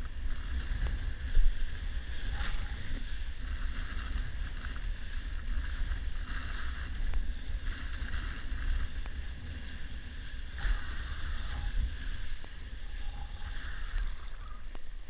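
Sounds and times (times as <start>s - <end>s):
breaking surf: 0.0s - 15.0s
wind buffeting microphone: 0.0s - 15.0s.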